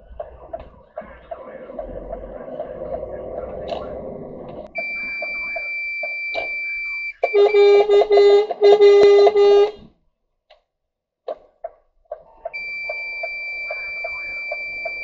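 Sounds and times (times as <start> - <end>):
high-pitched electronic beep: 4.7 - 8.0, 12.5 - 15.0
fire engine horn blasts: 7.2 - 9.9.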